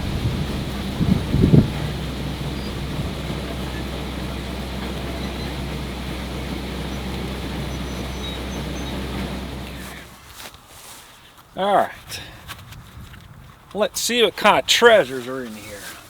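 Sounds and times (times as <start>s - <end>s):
low engine hum: 0.0s - 10.2s.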